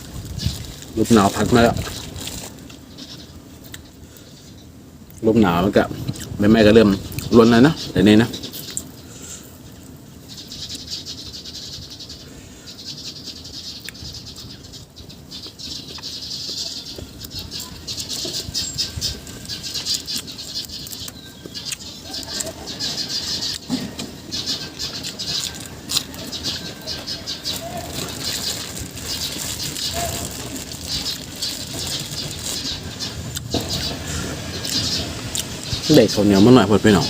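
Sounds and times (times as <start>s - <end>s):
wind rustling dry leaves: 0.0s - 23.5s, 24.1s - 37.0s.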